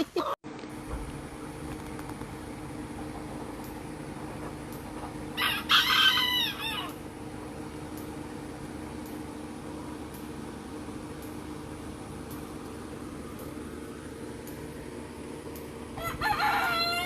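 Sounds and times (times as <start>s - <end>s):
steady low hum: 0.0s - 17.0s
rooster crowing: 5.4s - 7.0s, 16.0s - 17.0s.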